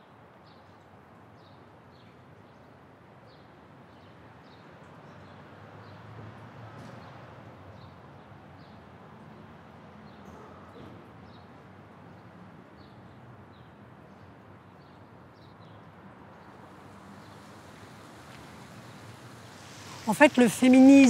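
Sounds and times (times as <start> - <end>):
faint outdoor background noise: 0.0 - 21.0
bird chirping: 16.5 - 21.0.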